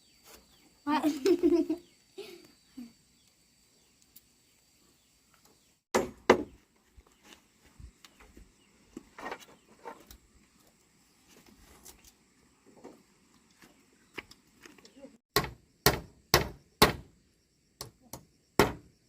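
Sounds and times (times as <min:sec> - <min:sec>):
sharp knocks: 0:15.3 - 0:17.1, 0:17.8 - 0:18.9.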